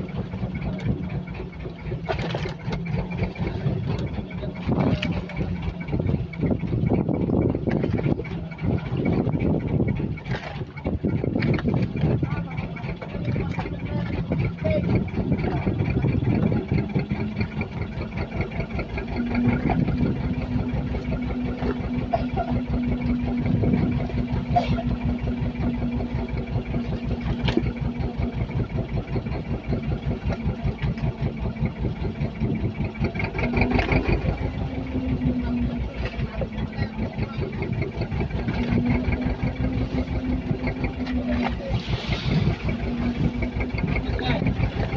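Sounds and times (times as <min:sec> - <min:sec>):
boat engine running: 0:00.0 - 0:44.9.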